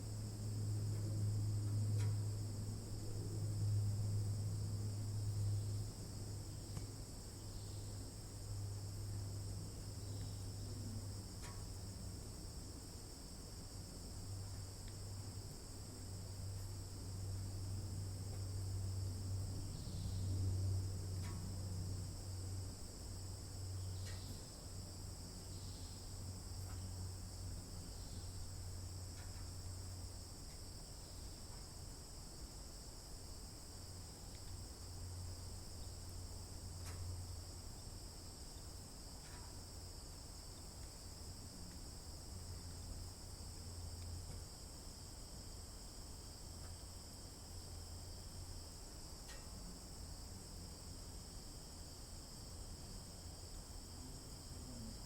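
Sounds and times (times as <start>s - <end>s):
insects chirping: 0.0s - 55.0s
faint ticks: 0.9s - 2.3s, 6.7s - 7.0s, 10.1s - 10.5s, 11.2s - 11.9s, 14.3s - 15.4s, 21.1s - 21.8s, 23.3s - 24.7s, 25.4s - 27.0s, 27.8s - 31.7s, 34.0s - 41.9s, 43.5s - 44.5s, 46.5s - 46.9s, 49.2s - 49.9s.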